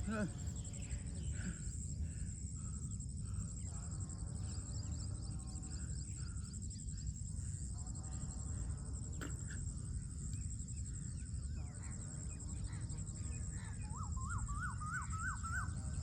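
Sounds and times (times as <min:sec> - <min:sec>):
birds chirping: 0:00.0 - 0:16.0
insects trilling: 0:00.0 - 0:16.0.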